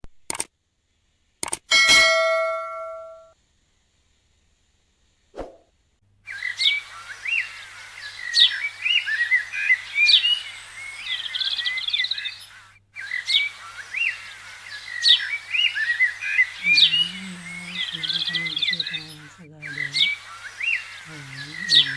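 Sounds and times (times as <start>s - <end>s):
small birds chirping and singing: 6.2s - 21.9s.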